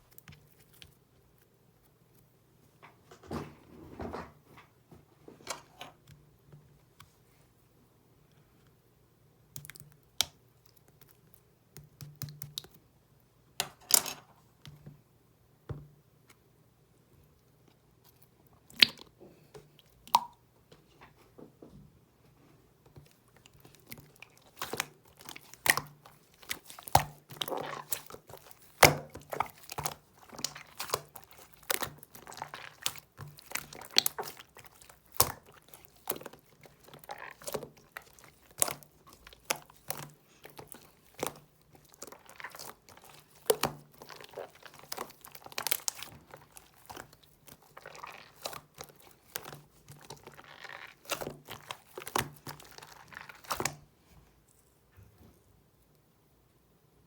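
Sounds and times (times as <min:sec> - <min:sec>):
slime clicking and crackling: 0:23.4 - 0:53.8.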